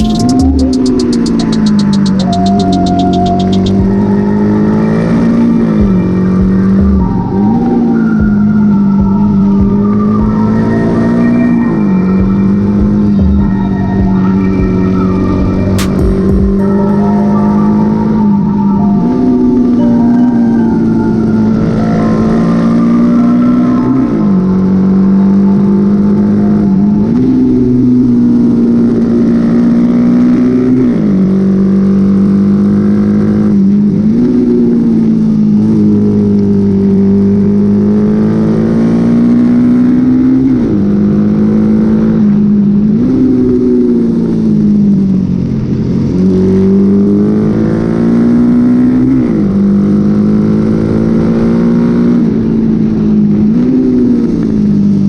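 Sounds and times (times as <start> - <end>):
motorcycle engine revving: 0.0 - 16.6.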